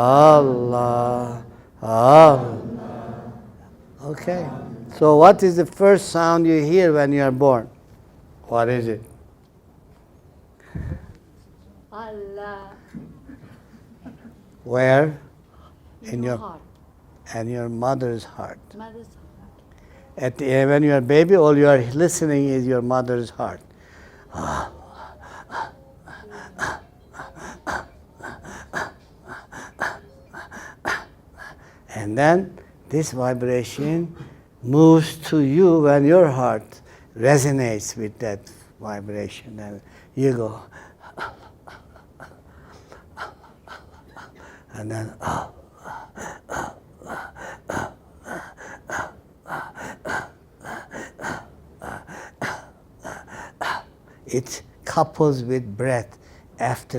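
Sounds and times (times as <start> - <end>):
short sharp breaths: 23.7 - 24.3.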